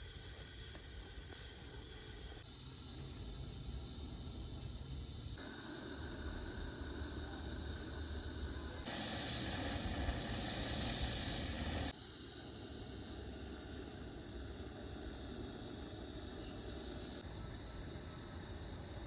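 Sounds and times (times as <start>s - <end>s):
food sizzling over heat: 5.4s - 17.3s.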